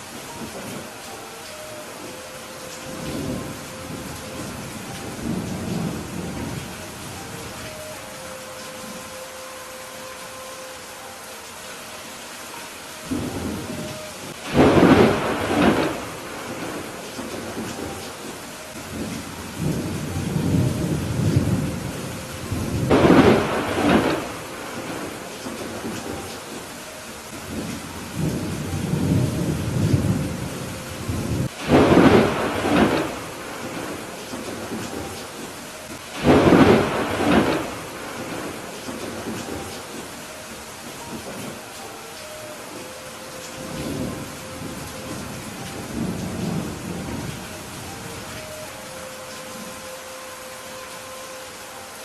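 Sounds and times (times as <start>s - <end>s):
steady rain falling: 0.0s - 52.0s
thunder rumbling: 1.8s - 9.1s, 13.0s - 41.7s, 42.8s - 49.0s
sharp thunderclap: 14.5s - 17.8s, 22.9s - 24.8s, 31.6s - 35.0s, 36.2s - 39.6s.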